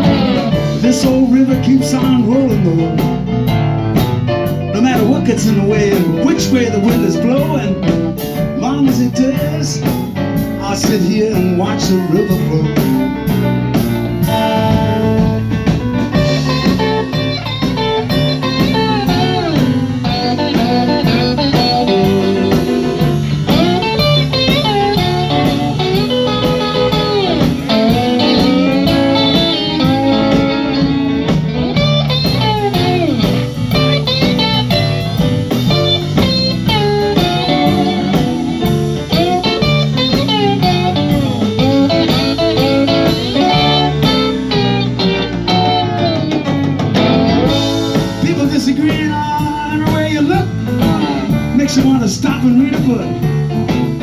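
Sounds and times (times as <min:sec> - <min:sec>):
electric guitar solo: 0:00.0 - 0:01.1, 0:13.1 - 0:48.5
bass: 0:00.0 - 0:54.0
steady drum beat: 0:00.0 - 0:54.0.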